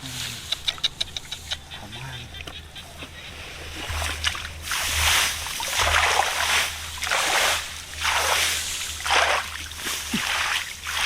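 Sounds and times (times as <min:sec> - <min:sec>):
low steady hum: 0:00.0 - 0:11.0
shallow water splashing: 0:03.6 - 0:11.0.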